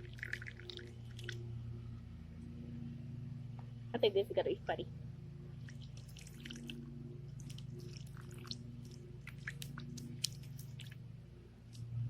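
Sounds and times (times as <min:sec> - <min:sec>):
slime squelching: 0:00.0 - 0:01.4, 0:05.6 - 0:11.0
steady low hum: 0:00.0 - 0:12.0.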